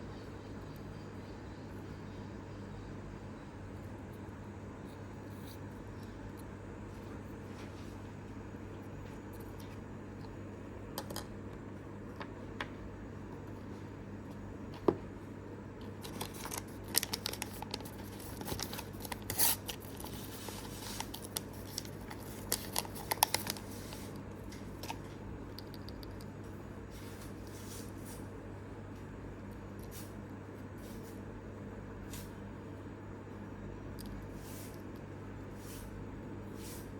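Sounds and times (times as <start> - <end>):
steady low hum: 0.0 - 36.9
packaging crinkling: 16.0 - 25.0.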